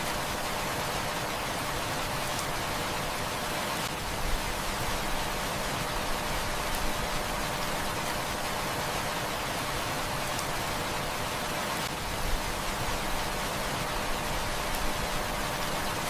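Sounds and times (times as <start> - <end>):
heavy rain falling: 0.0 - 16.0
wood fire crackling: 6.0 - 8.2.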